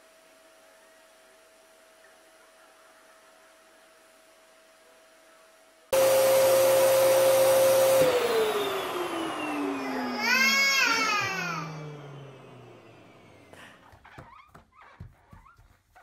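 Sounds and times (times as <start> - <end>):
vacuum cleaner whine: 5.9 - 14.2
baby crying: 9.8 - 12.1.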